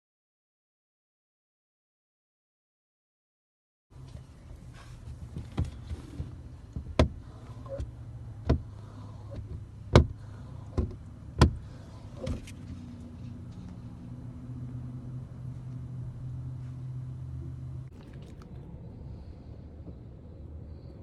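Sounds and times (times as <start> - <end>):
knocks on car windows: 6.8 - 7.2, 9.4 - 10.2, 10.8 - 11.6.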